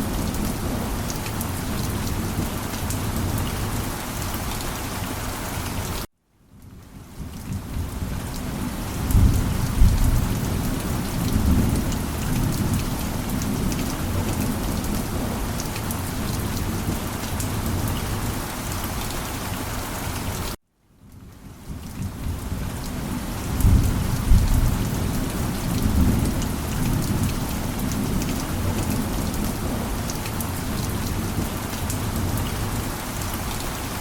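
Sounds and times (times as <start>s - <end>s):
heavy rain falling: 0.0s - 20.6s, 21.2s - 34.0s
low thunder rumble: 7.4s - 15.6s, 22.0s - 32.8s.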